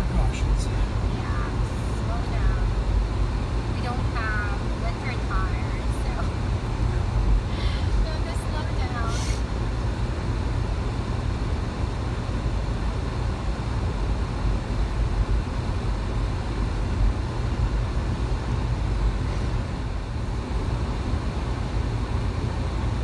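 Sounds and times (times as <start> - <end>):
tyre road noise: 0.0 - 13.5
car driving rumble in cabin: 0.0 - 23.0.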